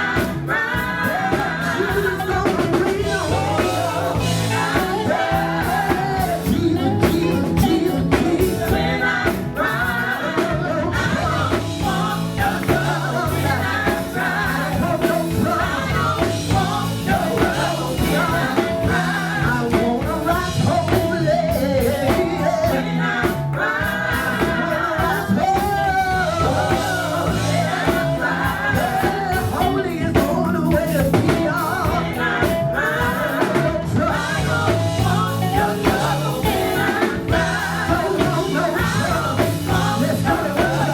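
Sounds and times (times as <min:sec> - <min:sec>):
band with drums and bass: 0:00.0 - 0:40.9
group singing gospel: 0:00.0 - 0:40.9.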